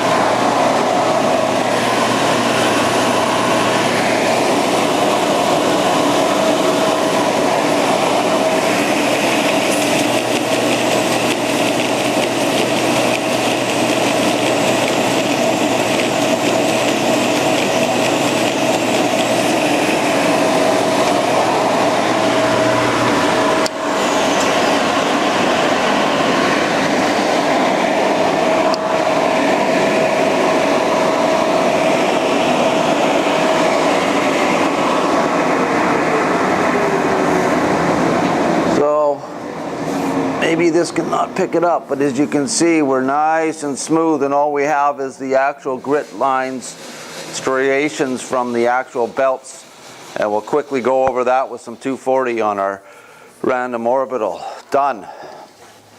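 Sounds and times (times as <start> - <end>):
edge sander grinding: 0.0 - 38.8.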